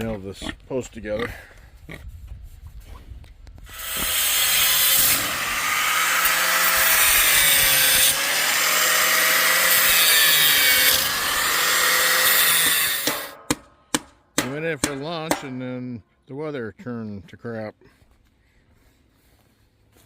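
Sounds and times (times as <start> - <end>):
power saw cutting wood: 3.7 - 13.4.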